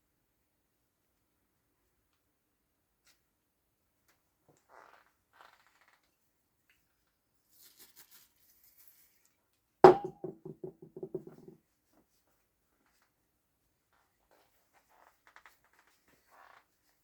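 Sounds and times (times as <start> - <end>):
metal part hitting workbench: 9.9 - 11.5
part bouncing and rattling: 9.9 - 11.5.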